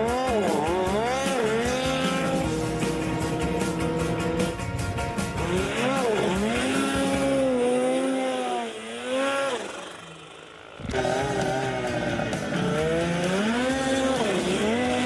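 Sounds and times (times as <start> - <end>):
music: 0.0 - 7.7, 10.9 - 15.0
small engine revving: 0.0 - 15.0.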